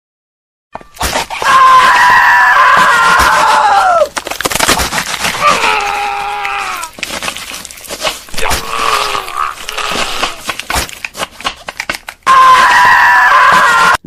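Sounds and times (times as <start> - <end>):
person screaming: 1.4 - 4.1, 5.4 - 7.0, 8.3 - 10.4, 12.3 - 14.0.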